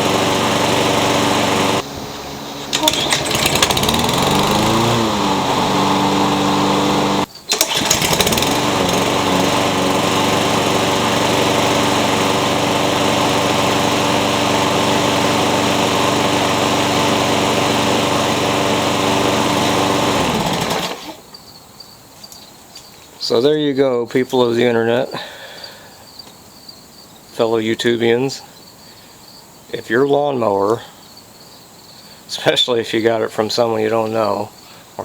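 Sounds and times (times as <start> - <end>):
lawn mower engine running: 0.0 - 21.3.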